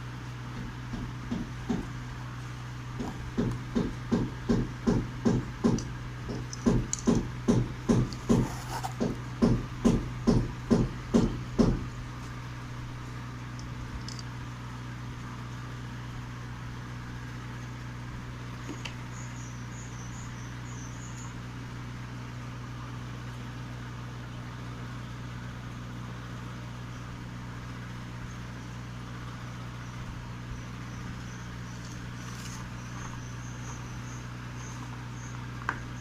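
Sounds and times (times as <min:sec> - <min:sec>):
steady low motor hum: 0:00.0 - 0:36.0
insects chirping: 0:13.6 - 0:14.4, 0:17.4 - 0:22.3, 0:26.8 - 0:36.0.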